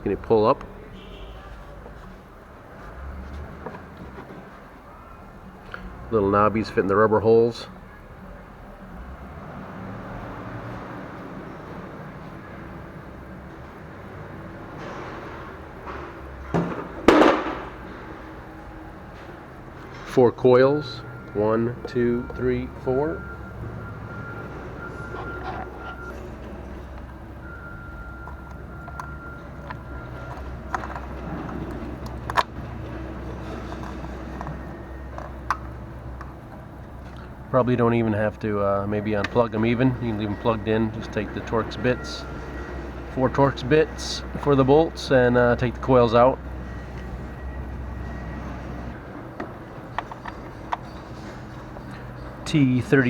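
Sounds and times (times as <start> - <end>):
clicks and knocks of handled parts: 28.0 - 37.4, 49.4 - 52.2
plastic clatter: 28.3 - 36.3.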